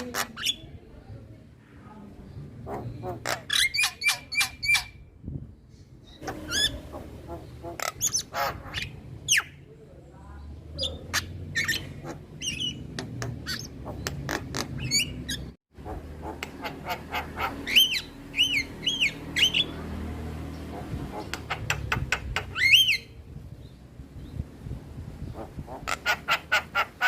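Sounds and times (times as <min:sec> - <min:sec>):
bird clicking and chattering: 0:11.0 - 0:18.1, 0:20.6 - 0:23.0.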